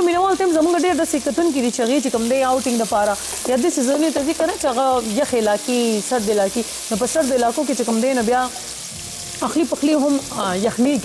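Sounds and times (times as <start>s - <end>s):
food sizzling in hot oil: 0.0s - 11.0s
wooden spoons stirring in pans: 2.3s - 4.2s.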